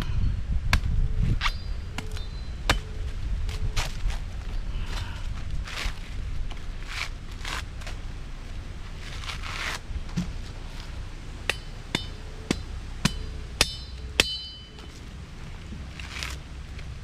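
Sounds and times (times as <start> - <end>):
sharp metal strikes ringing: 1.4 - 3.0, 11.5 - 15.0.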